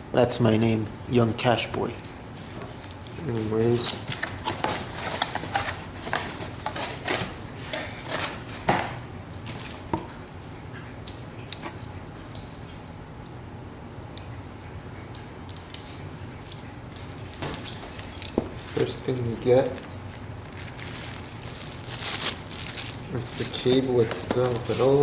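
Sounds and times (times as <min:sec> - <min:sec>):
hands handling packaging: 0:03.2 - 0:10.0, 0:17.6 - 0:25.0.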